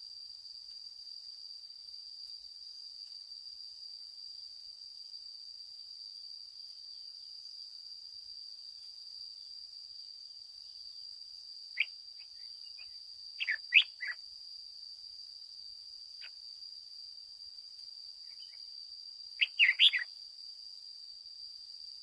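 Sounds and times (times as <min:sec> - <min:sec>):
bird chirping: 0:11.8 - 0:14.2, 0:18.3 - 0:18.6, 0:19.4 - 0:20.1.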